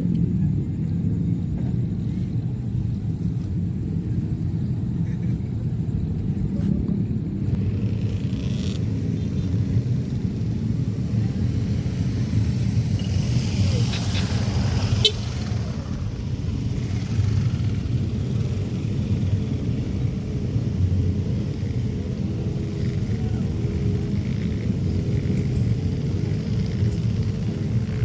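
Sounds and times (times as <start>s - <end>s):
jet engines rumbling: 0.0s - 28.0s
hiss: 10.8s - 17.6s.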